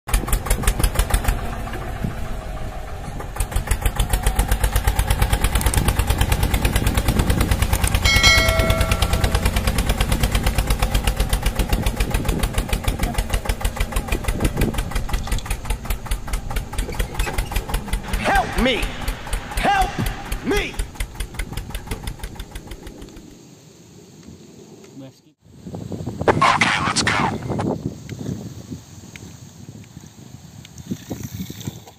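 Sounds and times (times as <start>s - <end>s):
tractor engine knocking: 0.1s - 23.3s.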